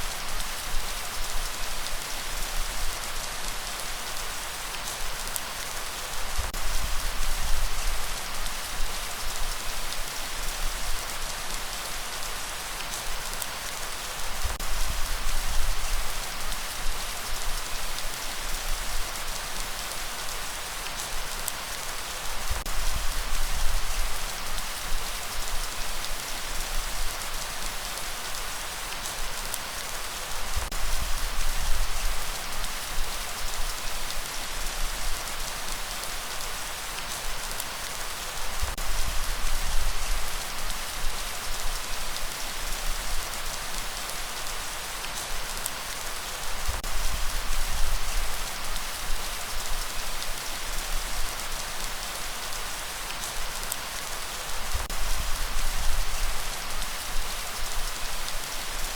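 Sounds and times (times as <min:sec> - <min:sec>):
heavy rain hiss: 0:00.0 - 0:58.9.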